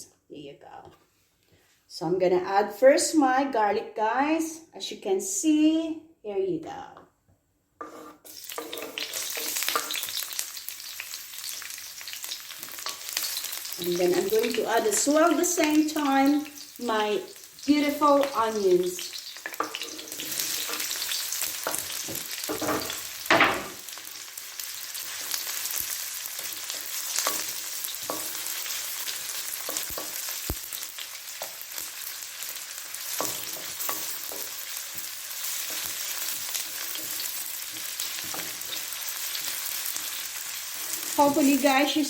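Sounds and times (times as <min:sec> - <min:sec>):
spoon scraping pan: 0:07.8 - 0:11.0, 0:12.3 - 0:24.0, 0:25.0 - 0:30.6
onions sizzling in oil: 0:07.8 - 0:42.0.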